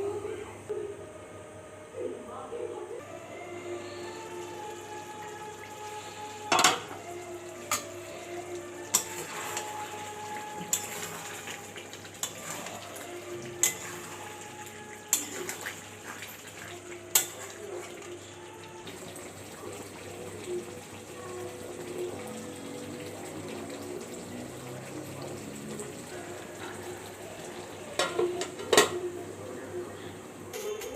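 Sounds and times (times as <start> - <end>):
metal utensils clanking on cookware: 6.4 - 7.0, 7.7 - 8.0, 8.9 - 14.4, 15.0 - 18.1, 27.9 - 29.1, 30.5 - 30.9.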